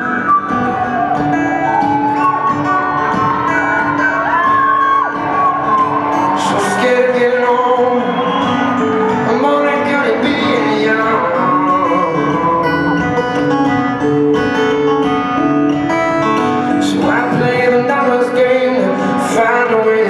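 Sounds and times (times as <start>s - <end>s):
crowd whoop: 0.0s - 13.8s
wordless sung or whistled melody: 0.0s - 13.8s, 16.4s - 20.0s
acoustic guitar playing: 0.0s - 20.0s.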